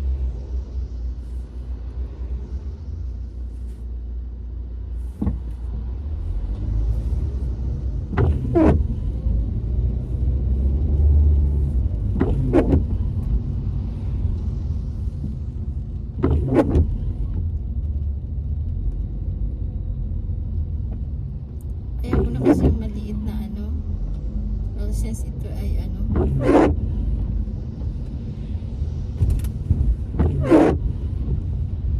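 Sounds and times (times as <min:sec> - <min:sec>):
car road rumble: 0:00.0 - 0:31.9
squeaky windscreen wipers: 0:05.0 - 0:05.9, 0:08.1 - 0:09.4, 0:11.2 - 0:13.4, 0:16.2 - 0:17.5, 0:22.0 - 0:23.2, 0:25.8 - 0:28.0, 0:29.2 - 0:31.9.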